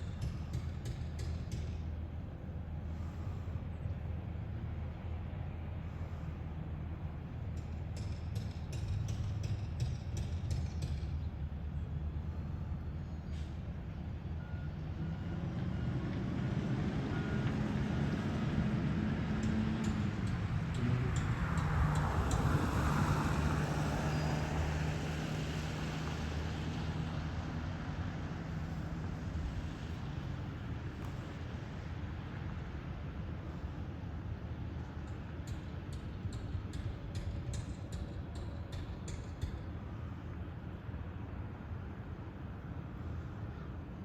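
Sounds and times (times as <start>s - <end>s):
faint reversing beeper: 14.4s - 16.0s.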